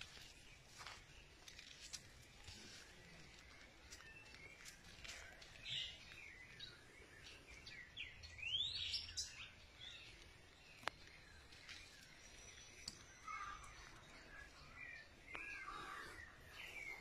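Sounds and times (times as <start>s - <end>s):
birds chirping and calling: 0.0s - 17.0s.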